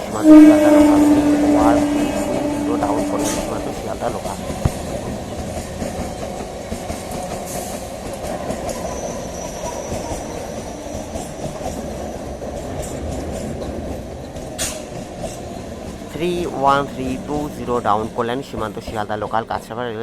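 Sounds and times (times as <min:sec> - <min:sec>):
wheel squeal: 0:00.0 - 0:04.8, 0:08.5 - 0:12.2
train wheels rumbling on rails: 0:00.0 - 0:20.0.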